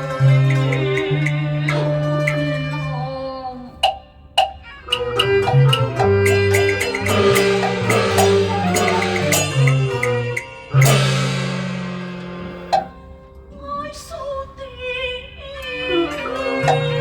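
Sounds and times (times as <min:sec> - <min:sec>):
sharp quick percussion strikes: 0:00.0 - 0:02.5, 0:03.8 - 0:13.1
sustained melody instruments: 0:00.0 - 0:17.0.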